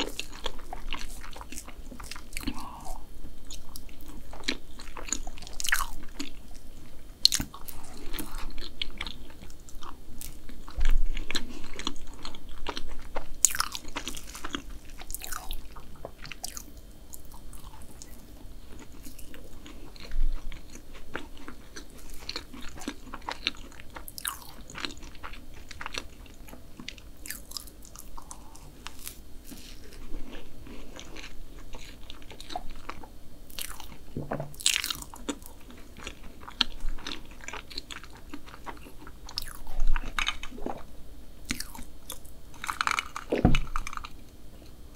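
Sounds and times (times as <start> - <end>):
chewing and crunching: 0.0 - 40.9, 41.5 - 44.8.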